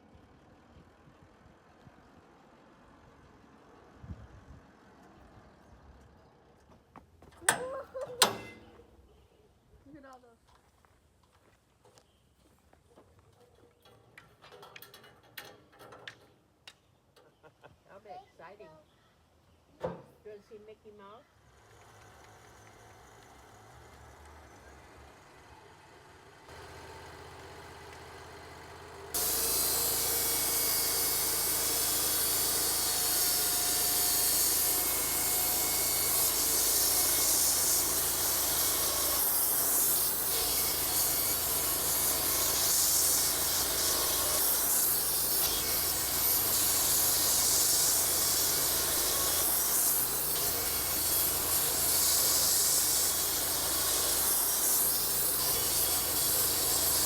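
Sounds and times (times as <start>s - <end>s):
band saw cutting wood: 29.1s - 57.0s.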